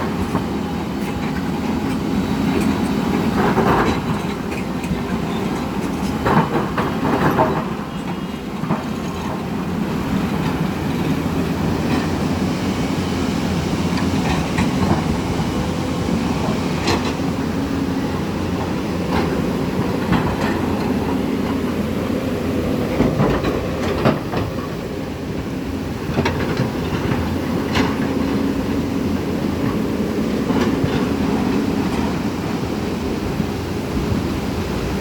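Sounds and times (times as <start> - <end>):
river floodwater rushing: 0.0 - 35.0.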